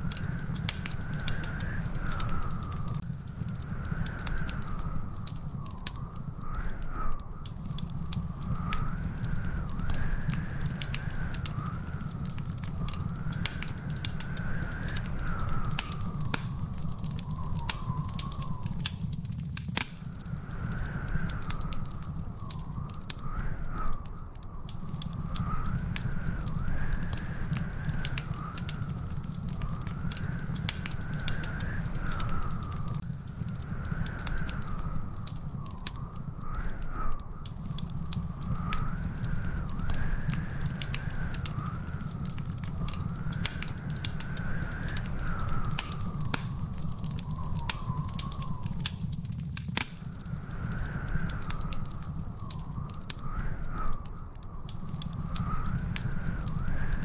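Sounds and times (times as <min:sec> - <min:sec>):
wood fire crackling: 0:00.0 - 0:57.0
wavering whistling tone: 0:12.7 - 0:19.1, 0:38.2 - 0:49.1.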